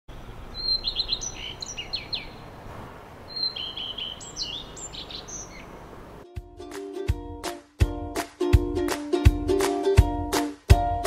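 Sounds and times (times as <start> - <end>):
songbird singing: 0.1 - 6.2
steady low background hiss: 0.1 - 6.3.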